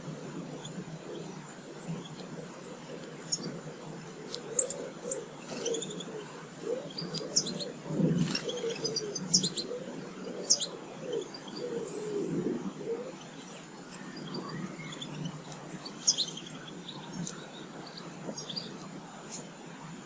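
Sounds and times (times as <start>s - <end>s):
pigeon cooing: 0.0s - 13.4s
small birds chirping: 0.4s - 19.7s.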